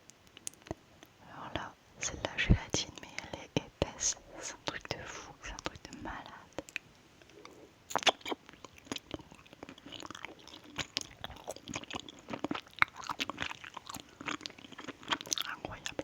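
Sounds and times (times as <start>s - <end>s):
wet chewing mouth sounds: 4.7s - 16.0s.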